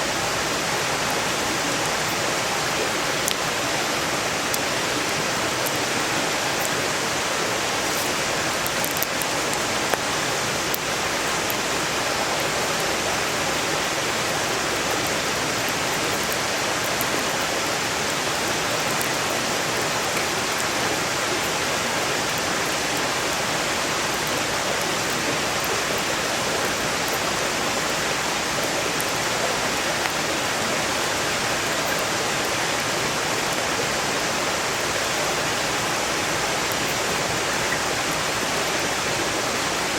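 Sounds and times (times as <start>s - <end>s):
campfire crackling: 0.0s - 39.9s
stream rushing: 0.0s - 39.9s
campfire pop: 7.9s - 10.1s.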